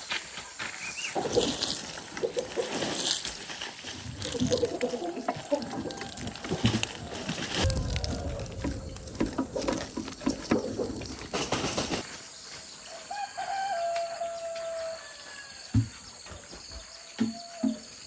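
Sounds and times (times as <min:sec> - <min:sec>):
insect drone: 0:00.0 - 0:18.0
noisy splashing with clicks: 0:01.2 - 0:12.0
dull knocks: 0:07.6 - 0:12.0.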